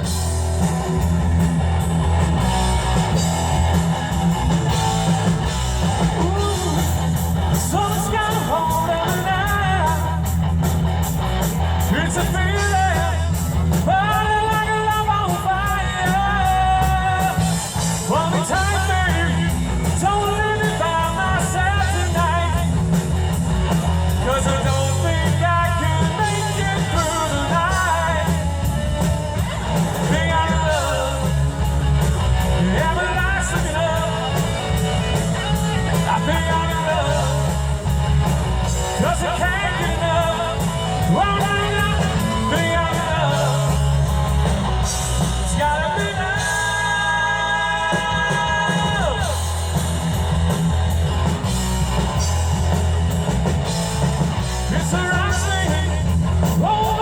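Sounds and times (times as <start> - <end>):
live rock band playing: 0.0 - 57.0
person singing: 35.5 - 37.8, 38.8 - 49.6.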